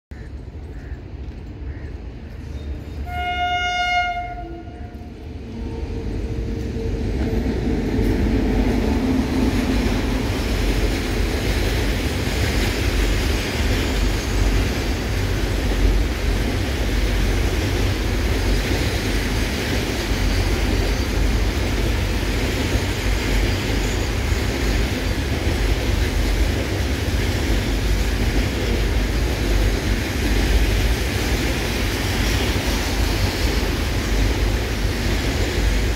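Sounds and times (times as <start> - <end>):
freight wagons rumbling over rails: 0.1 - 35.9
locomotive horn blast: 3.0 - 6.0.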